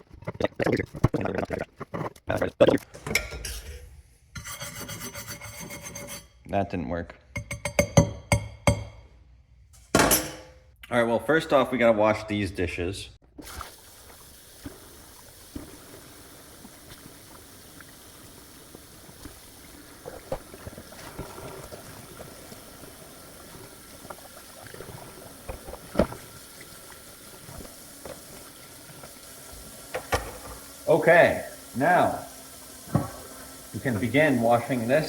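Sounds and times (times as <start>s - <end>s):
dishes knocking and clinking: 3.0s - 3.8s, 7.3s - 9.0s, 9.9s - 10.6s, 29.9s - 30.7s, 32.9s - 33.3s
tap water running into sink: 13.4s - 35.0s.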